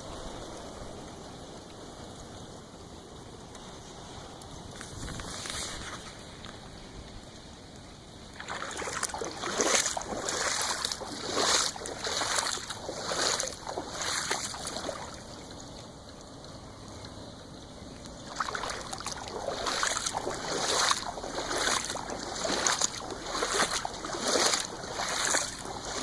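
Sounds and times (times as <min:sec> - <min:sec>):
steady low hiss: 0:00.0 - 0:26.0
water splashing: 0:08.2 - 0:26.0.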